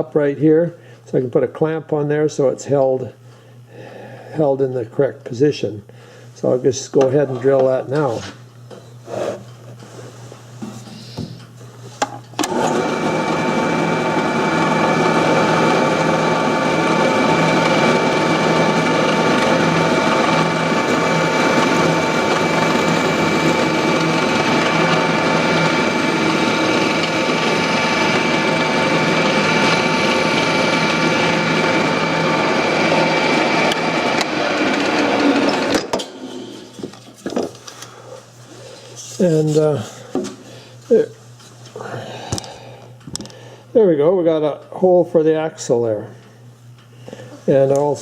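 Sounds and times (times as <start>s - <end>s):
electric drill boring wood: 12.4s - 36.0s.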